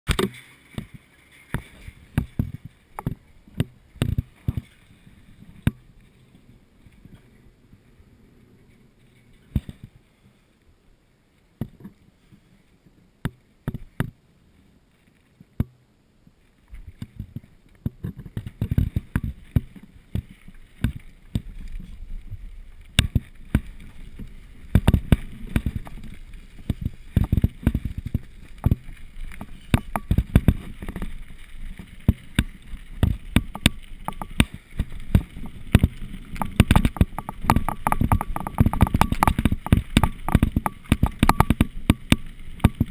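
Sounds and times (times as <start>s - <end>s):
mountain bike rattling on trail: 0.1s - 10.4s, 16.5s - 42.9s
knocks and impacts: 32.1s - 42.9s.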